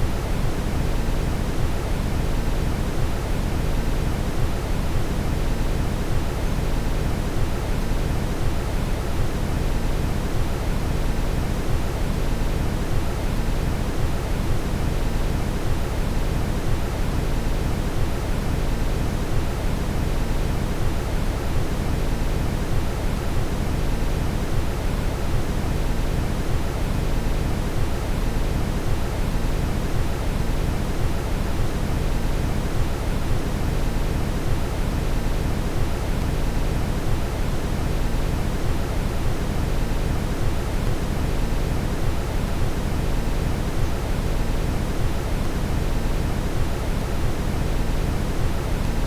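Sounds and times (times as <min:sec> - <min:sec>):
brown noise rush: 0:00.0 - 0:49.0.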